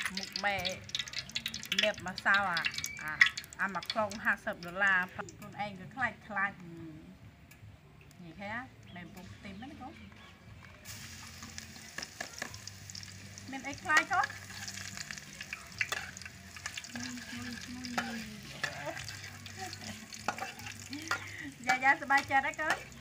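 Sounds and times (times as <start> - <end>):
food sizzling in a wok: 0.0 - 4.6, 10.8 - 23.0
metal spatula scraping a pan: 15.8 - 23.0.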